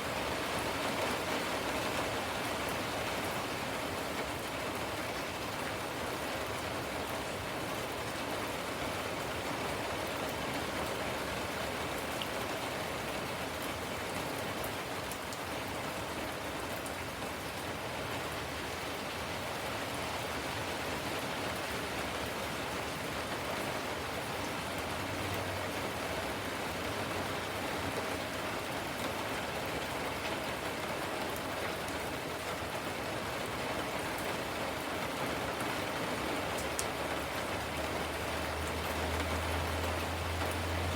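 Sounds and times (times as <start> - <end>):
rain pattering on surfaces: 0.0 - 40.9.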